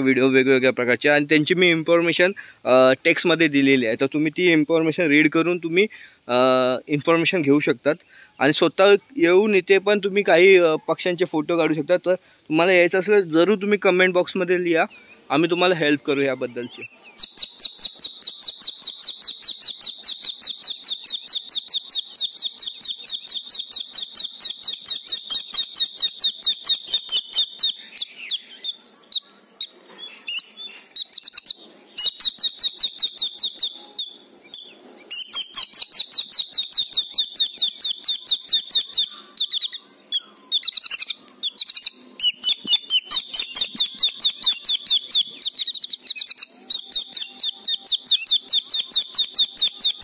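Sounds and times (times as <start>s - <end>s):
bird calling in fast high notes: 16.6s - 50.0s.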